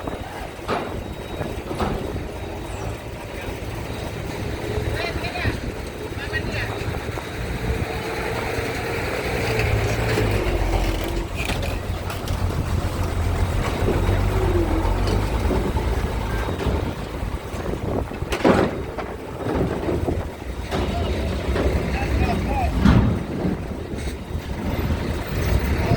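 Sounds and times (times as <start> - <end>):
ship engines droning: 0.0 - 25.9.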